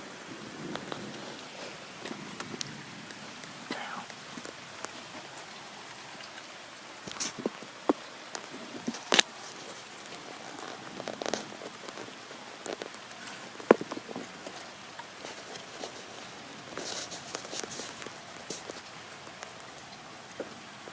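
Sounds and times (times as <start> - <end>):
steady rain falling: 0.0 - 20.9
drops tapping nearby: 10.0 - 16.0.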